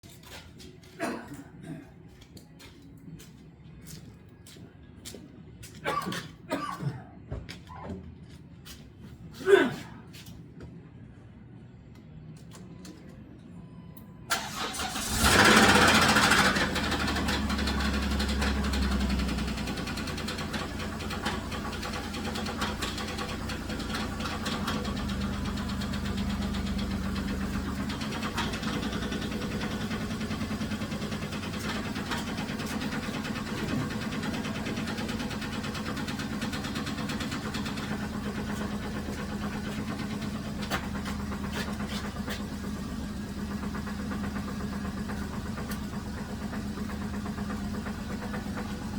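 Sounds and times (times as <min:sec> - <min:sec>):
car engine starting and idling: 0:14.3 - 0:48.9
knock in running engine: 0:17.4 - 0:48.8.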